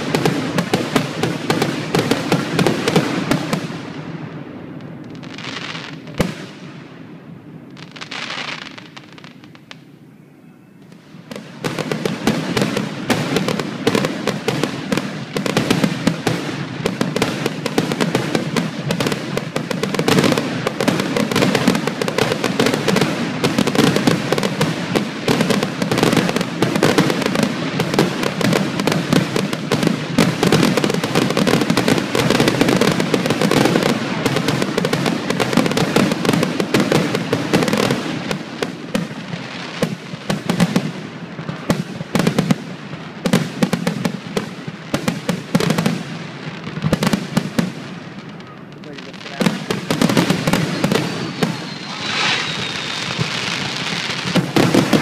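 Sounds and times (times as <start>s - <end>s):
firework shells bursting: 49.3s - 55.0s.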